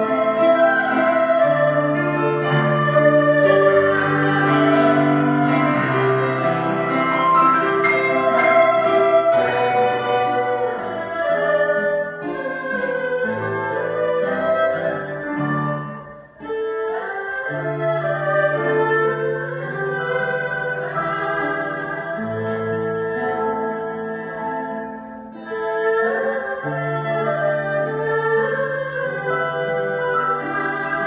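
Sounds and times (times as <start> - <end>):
bowed strings: 0.0 - 31.0
piano: 0.0 - 31.0.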